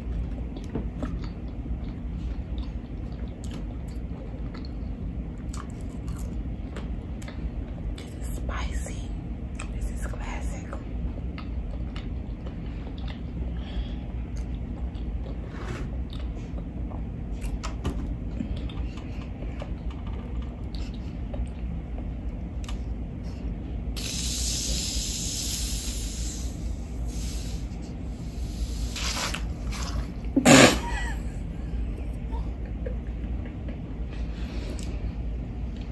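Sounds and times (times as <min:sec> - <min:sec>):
carbonation hissing: 0:24.0 - 0:30.8.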